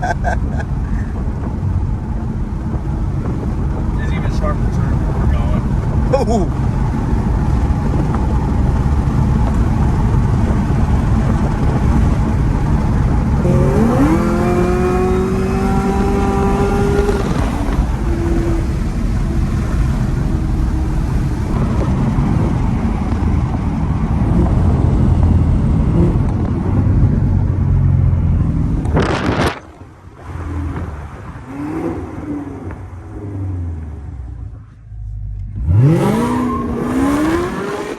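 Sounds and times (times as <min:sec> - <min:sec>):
car engine and road rumble: 0:00.0 - 0:37.9
rising pitched tone: 0:04.2 - 0:27.1.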